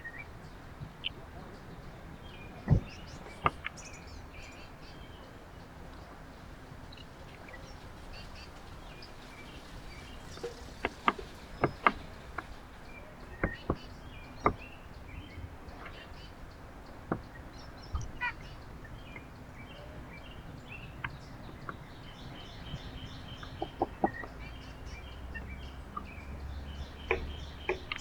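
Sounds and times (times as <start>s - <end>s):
outdoor background hiss: 0.0s - 28.0s
songbirds chirping: 0.0s - 28.0s
sharp taps and clicks: 27.0s - 28.0s.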